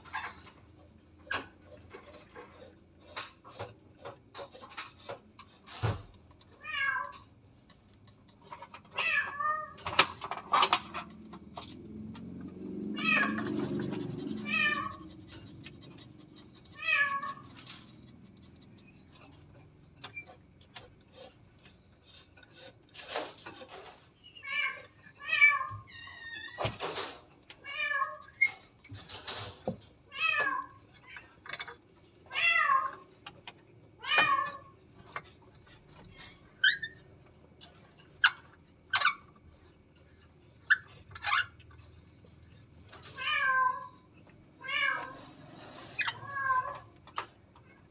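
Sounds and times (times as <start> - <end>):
cat meowing: 6.6 - 7.3, 8.9 - 9.8, 13.0 - 16.0, 16.7 - 17.6, 27.6 - 28.4, 32.3 - 33.0, 43.1 - 44.0, 44.6 - 45.3, 46.1 - 46.9.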